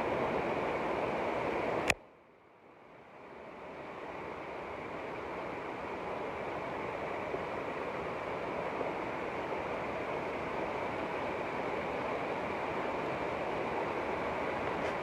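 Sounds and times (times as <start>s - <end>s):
water rushing: 3.2s - 15.0s.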